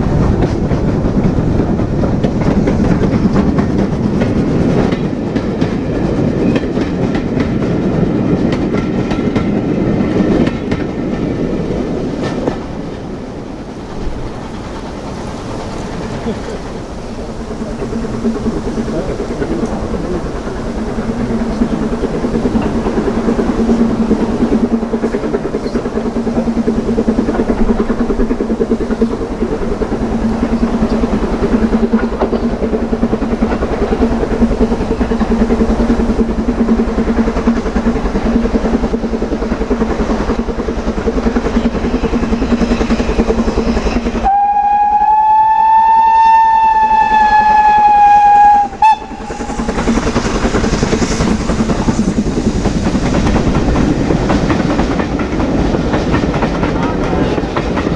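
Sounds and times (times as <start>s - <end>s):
steam train running past: 0.0s - 57.9s
steam whistle blast: 44.2s - 49.8s.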